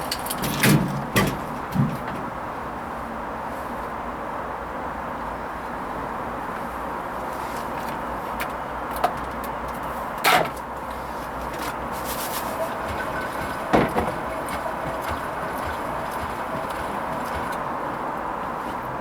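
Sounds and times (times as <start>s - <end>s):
washing machine drum noise: 0.4s - 2.7s, 11.9s - 19.0s
short knocks: 12.4s - 17.6s.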